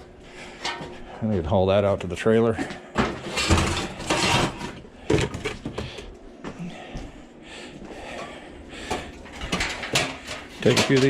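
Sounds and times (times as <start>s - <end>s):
scraping and rustling scrap: 3.1s - 5.6s.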